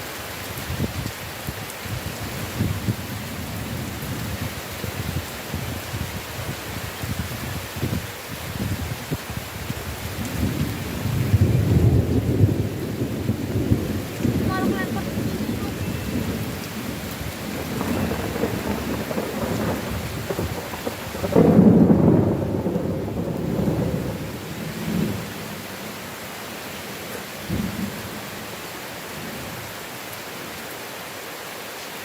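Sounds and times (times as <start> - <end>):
heavy rain: 0.0 - 32.0
rolling thunder: 7.8 - 25.6.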